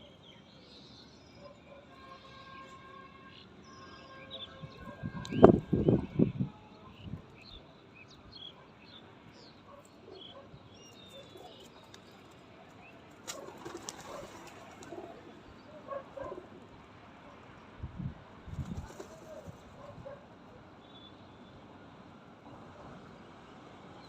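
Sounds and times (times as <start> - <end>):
small birds chirping: 6.9 - 16.4.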